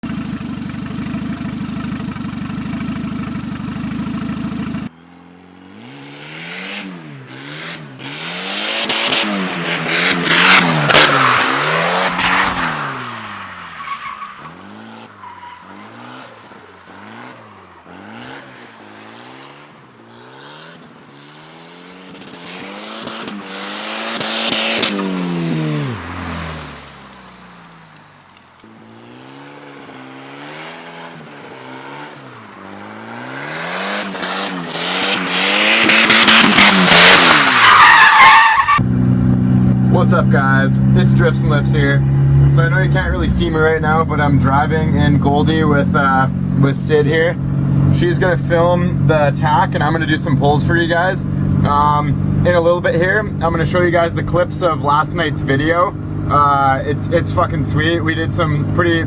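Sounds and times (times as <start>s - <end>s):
car engine revving: 0.0s - 59.0s
tyres squealing: 8.0s - 19.5s, 31.7s - 38.8s
steady droning: 38.7s - 59.0s.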